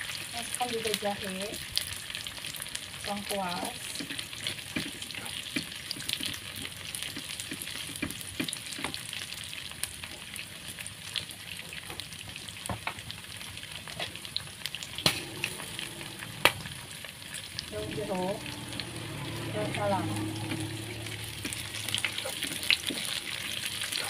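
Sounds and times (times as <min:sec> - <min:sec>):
food sizzling in hot oil: 0:00.0 - 0:24.0
spatula scraping a pan: 0:18.4 - 0:24.0.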